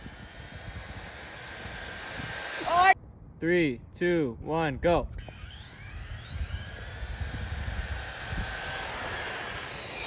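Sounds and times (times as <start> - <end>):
electric motors whining: 0.0 - 3.0, 5.2 - 10.0.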